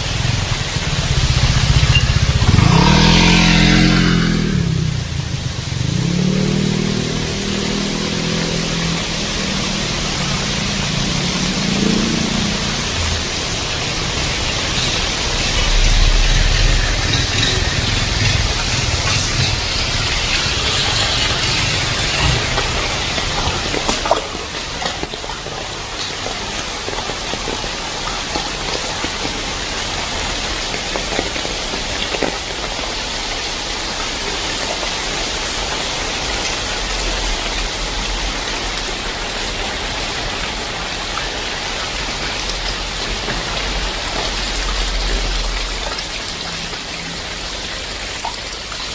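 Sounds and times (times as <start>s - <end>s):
heavy rain pouring: 0.0s - 48.9s
low rumble: 13.9s - 23.4s.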